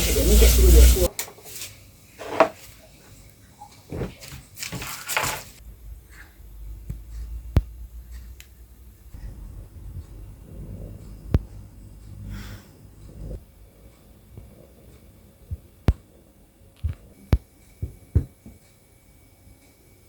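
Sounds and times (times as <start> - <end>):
objects being handled: 3.8 - 5.6.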